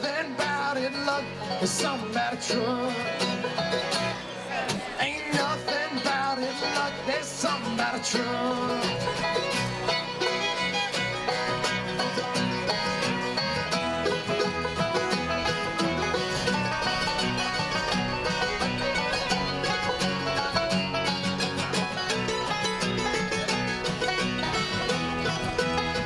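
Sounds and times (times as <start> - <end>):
banjo rolls: 0.0 - 26.0
fiddle: 0.0 - 26.0
guitar: 0.0 - 26.0
steady bass line: 5.4 - 26.0.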